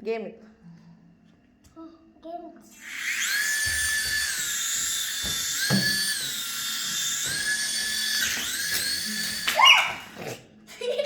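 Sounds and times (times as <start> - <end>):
toy helicopter motor whining: 2.7 - 10.4.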